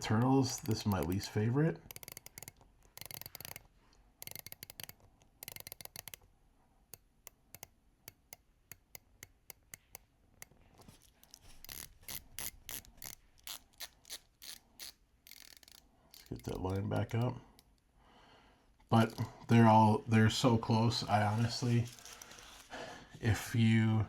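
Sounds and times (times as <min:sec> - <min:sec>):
watch bezel clicking: 0:00.0 - 0:06.3, 0:06.9 - 0:17.9.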